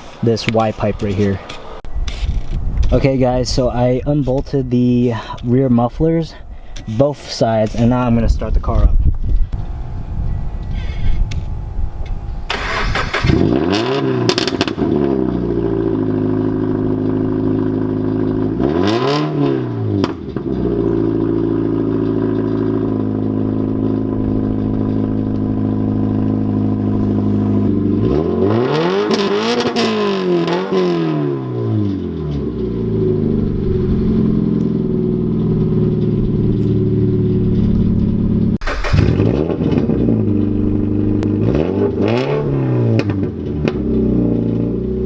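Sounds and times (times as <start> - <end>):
car engine starting and idling: 9.5 - 45.0
car engine revving: 12.4 - 45.0.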